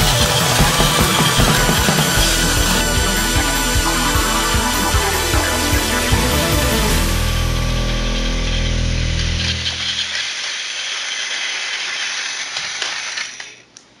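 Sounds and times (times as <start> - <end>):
music: 0.0 - 10.1
toy train motor whirring: 9.1 - 13.6.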